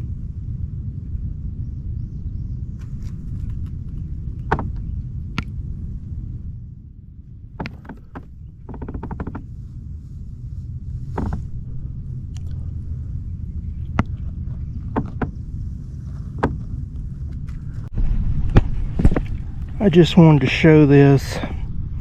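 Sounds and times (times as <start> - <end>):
wind rumble on microphone: 0.0 - 22.0
knocks on plastic kayak: 4.5 - 4.7
short rattling: 7.6 - 9.6.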